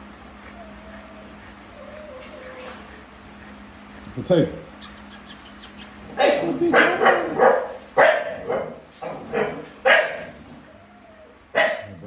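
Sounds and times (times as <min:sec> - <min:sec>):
dog barking: 0:06.2 - 0:10.4, 0:11.5 - 0:12.0.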